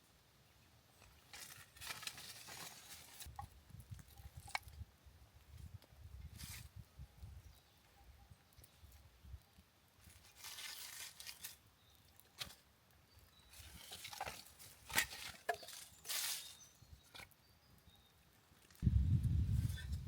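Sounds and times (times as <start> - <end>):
rustling crinkling and tearing: 1.2 - 3.4, 10.0 - 12.6.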